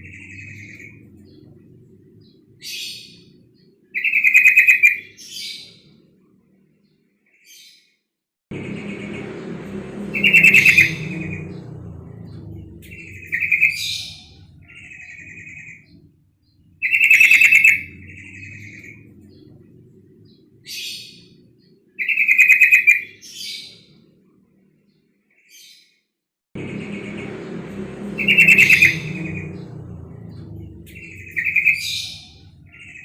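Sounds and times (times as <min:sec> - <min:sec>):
low rumble: 0:00.0 - 0:03.8, 0:08.5 - 0:21.9, 0:26.6 - 0:33.0.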